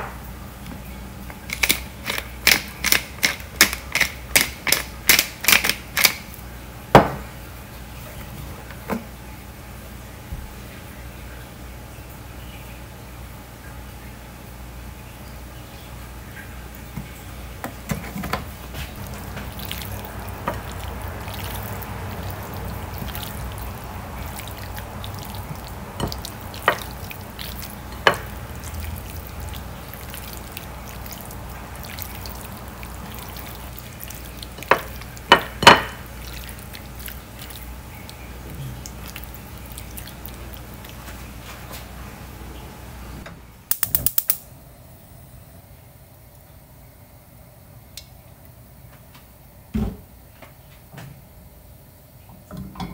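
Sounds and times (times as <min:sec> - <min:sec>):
hand squishing wet meat: 0:19.0 - 0:42.0.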